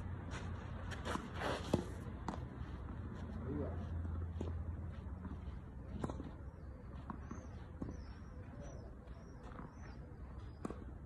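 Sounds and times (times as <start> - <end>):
small birds chirping: 5.4 - 11.0.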